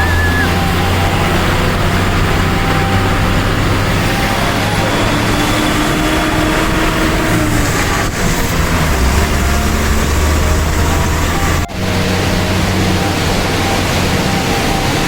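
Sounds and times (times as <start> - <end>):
road noise rush: 0.0 - 15.0
truck engine humming: 0.0 - 15.0.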